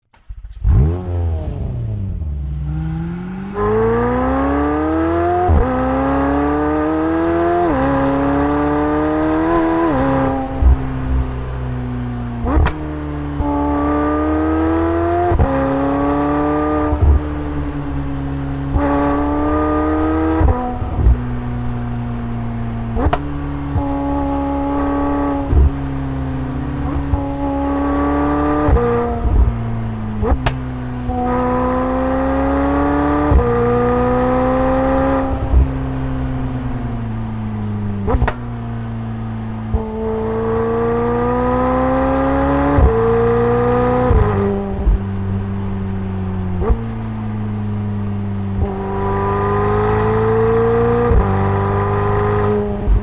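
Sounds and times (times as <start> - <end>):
sports car engine revving: 0.4 - 53.0.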